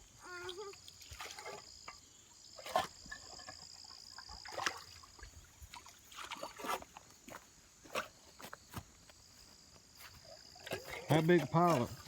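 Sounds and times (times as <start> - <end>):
insects chirring: 0.0 - 12.0
backhoe bucket sloshing and knocking: 0.5 - 8.2, 10.1 - 12.0.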